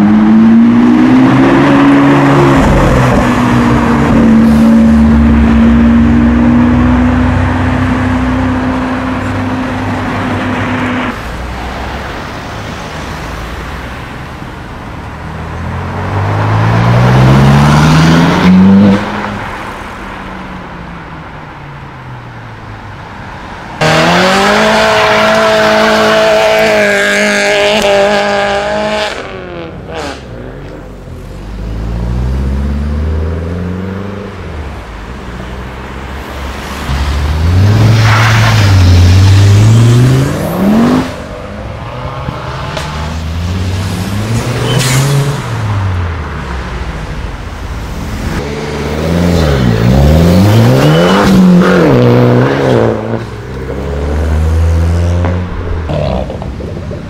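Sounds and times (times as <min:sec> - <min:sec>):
loud high-revving engine: 0:23.8 - 0:30.2, 0:38.6 - 0:41.2, 0:48.2 - 0:56.4
sports car engines accelerating: 0:23.8 - 0:57.0.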